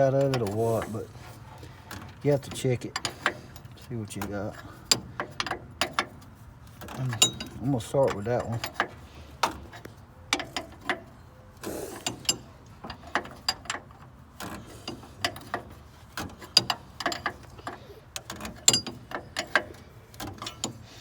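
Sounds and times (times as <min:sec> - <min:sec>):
ratchet wrench clicking: 0:16.4 - 0:20.9.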